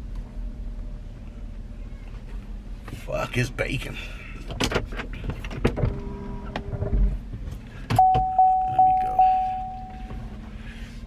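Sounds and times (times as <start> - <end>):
vehicle warning chime dinging: 8.0 - 10.3.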